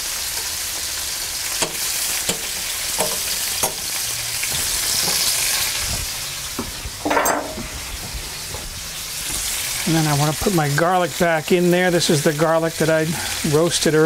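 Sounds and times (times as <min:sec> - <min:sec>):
small pops of frying: 0:00.0 - 0:05.4
butter sizzling in a skillet: 0:00.0 - 0:07.0, 0:07.6 - 0:14.0.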